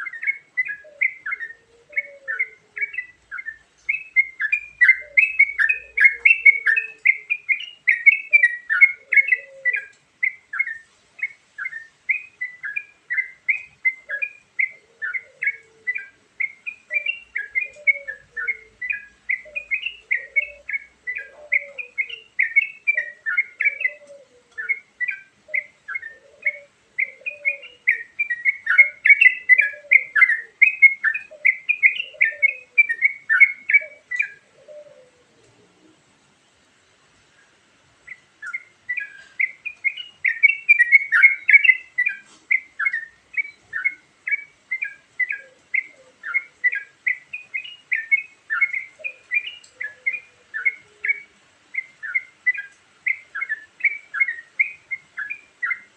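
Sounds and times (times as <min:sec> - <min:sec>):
bulbul chattering song: 0:00.0 - 0:35.1, 0:38.0 - 0:55.9.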